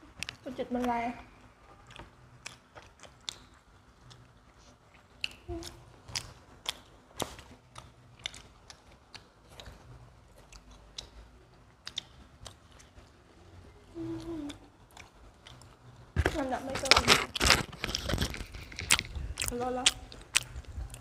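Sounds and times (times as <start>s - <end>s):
people chewing pizza: 0.0s - 21.0s
crisp crust crunches: 16.2s - 21.0s.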